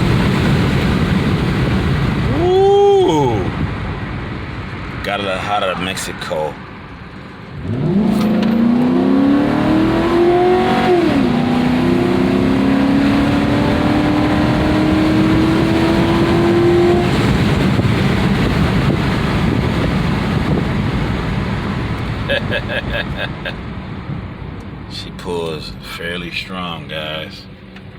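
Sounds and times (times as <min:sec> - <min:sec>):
road and tyre noise: 0:00.0 - 0:27.9
engine accelerating hard: 0:07.4 - 0:24.1.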